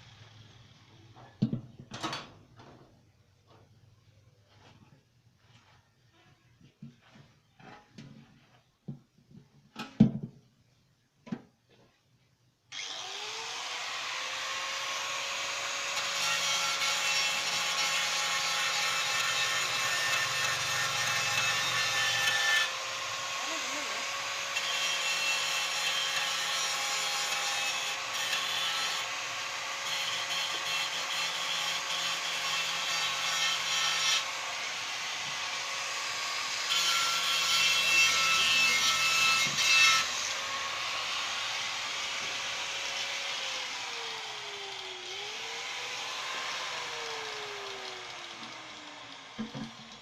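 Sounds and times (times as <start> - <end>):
power tool winding down: 12.7 - 30.2, 40.0 - 50.0
power tool whining: 12.7 - 50.0
tool rasping against surface: 36.7 - 40.4.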